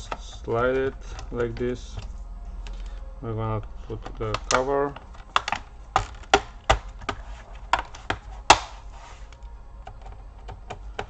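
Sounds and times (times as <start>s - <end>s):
plastic cover clips snapping: 3.9s - 9.5s.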